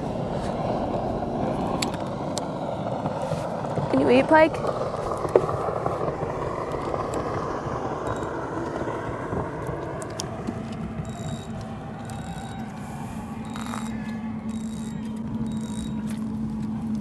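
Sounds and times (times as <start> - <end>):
faint steady hum: 0.0 - 17.0
geared mechanism whirring with clicks: 9.9 - 12.8, 13.4 - 16.2.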